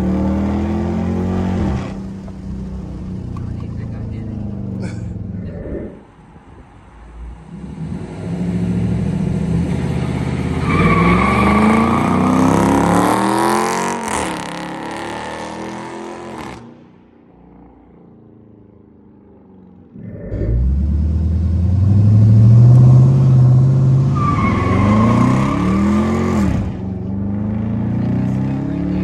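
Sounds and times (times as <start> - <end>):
low engine rumble: 0.0 - 10.6, 17.9 - 24.1
car engine accelerating hard: 0.0 - 17.0, 19.4 - 29.0.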